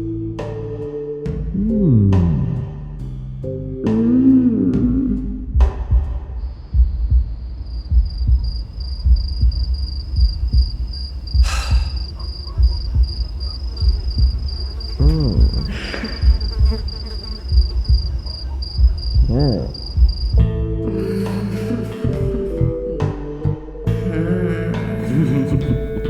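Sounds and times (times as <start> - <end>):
low rumble: 1.4 - 23.1
cricket chirping trill: 6.4 - 22.6.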